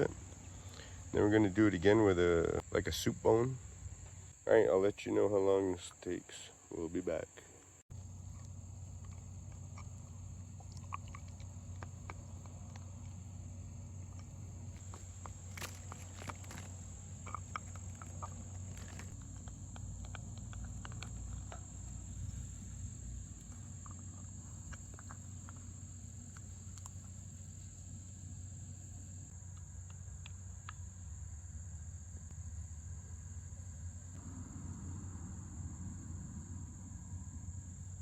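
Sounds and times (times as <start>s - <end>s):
dog gnawing antler chew: 8.3s - 13.3s, 14.0s - 22.3s.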